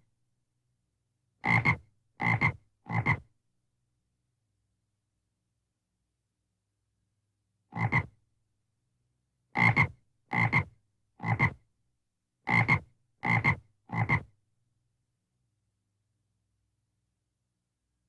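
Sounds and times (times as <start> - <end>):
frog croaking: 7.8 - 8.1, 12.5 - 14.2.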